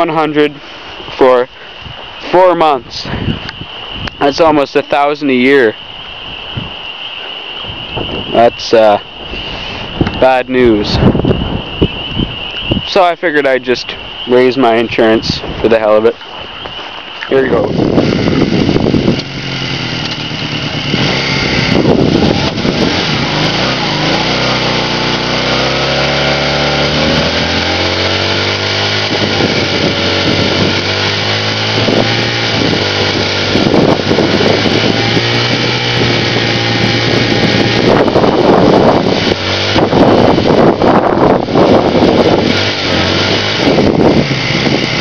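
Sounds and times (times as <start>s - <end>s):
rear tire spinning: 16.2s - 45.0s
motorcycle engine revving hard: 17.4s - 45.0s.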